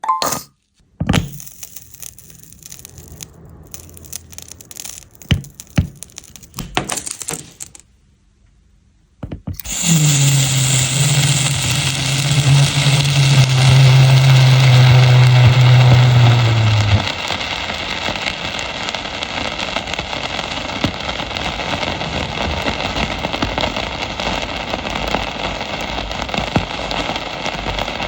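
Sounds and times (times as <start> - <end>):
loud steady sizzling: 1.1 - 7.8, 9.5 - 28.0
low drone: 2.2 - 7.7, 9.6 - 18.6.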